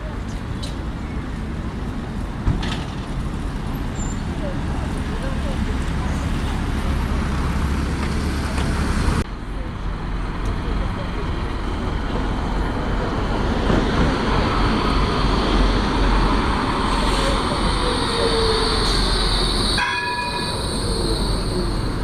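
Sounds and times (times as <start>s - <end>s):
rail vehicle rumbling past: 0.0s - 22.0s
high-pitched wheel squeal: 16.9s - 22.0s.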